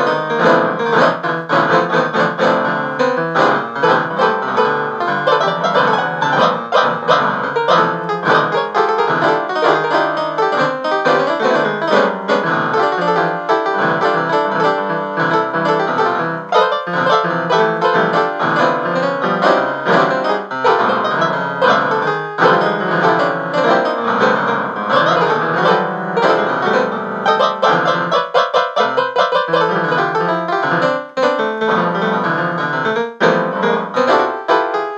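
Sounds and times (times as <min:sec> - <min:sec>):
fast piano music: 0:00.0 - 0:34.9.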